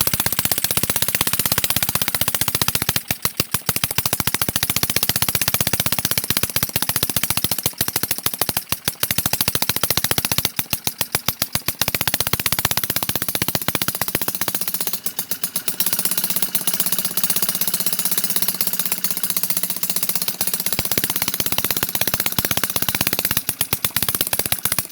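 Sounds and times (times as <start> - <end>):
small two-stroke engine popping: 0.0 - 24.9.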